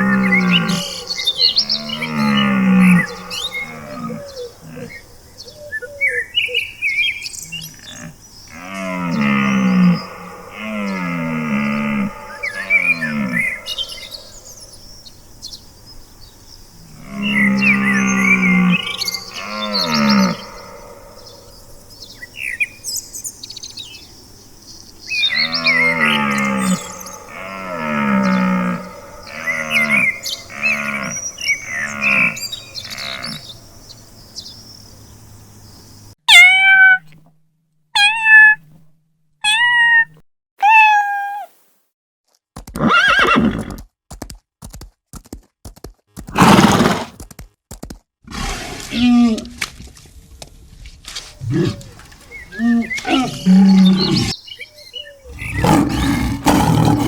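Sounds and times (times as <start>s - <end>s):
falling animal calls: 0.0s - 5.0s, 7.9s - 14.5s, 17.0s - 21.6s, 25.2s - 33.4s, 51.4s - 54.4s, 55.2s - 57.0s
harsh noisy animal calls: 0.0s - 5.0s, 7.7s - 14.6s, 16.8s - 21.9s, 25.1s - 33.5s, 46.3s - 47.2s, 51.4s - 54.4s, 55.2s - 57.0s
sharp high animal calls: 17.1s - 21.5s, 25.2s - 33.4s, 36.3s - 37.1s, 55.2s - 57.0s.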